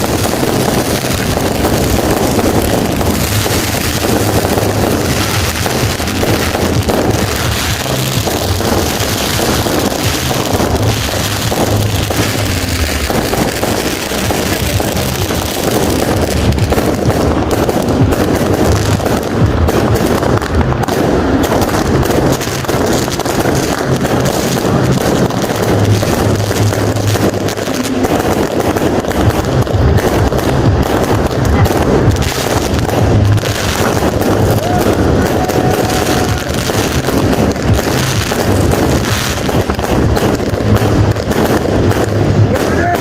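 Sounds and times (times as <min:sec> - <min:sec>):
fireworks cracking and banging: 0:00.0 - 0:43.0.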